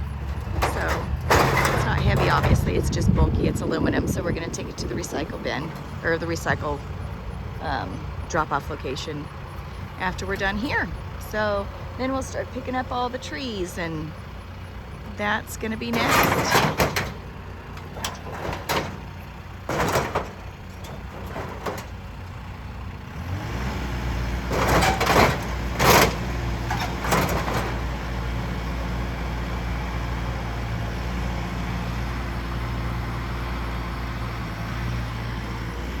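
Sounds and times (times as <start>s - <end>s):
metallic clanks and rattles: 0.0s - 23.0s, 24.3s - 28.5s
tractor diesel engine running: 0.0s - 36.0s.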